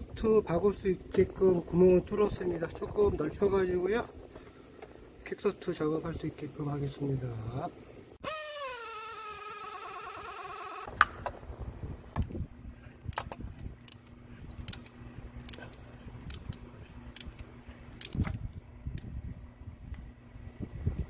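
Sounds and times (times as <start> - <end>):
low steady hum: 9.6 - 21.0.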